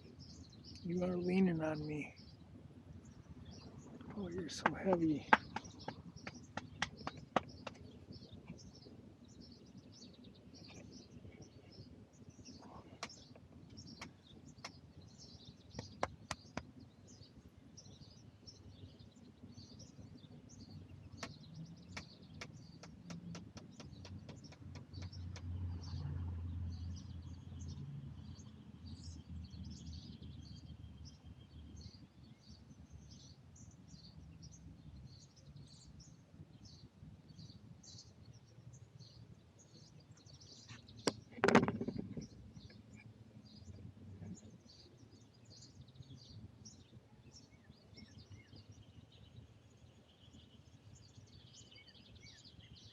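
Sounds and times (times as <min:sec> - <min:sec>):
small birds chirping: 0:00.0 - 0:52.9
sharp clicks: 0:21.2 - 0:25.6.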